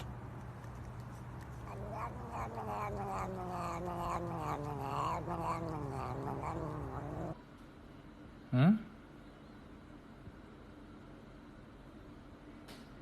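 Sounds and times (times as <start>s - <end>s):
cat yowling: 1.5s - 7.4s.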